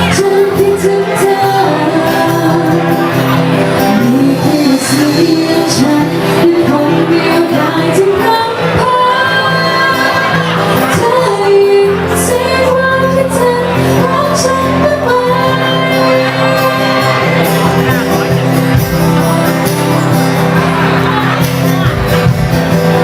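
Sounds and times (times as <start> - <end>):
woman singing: 0.0 - 3.2, 3.8 - 17.4
bass line: 0.0 - 23.0.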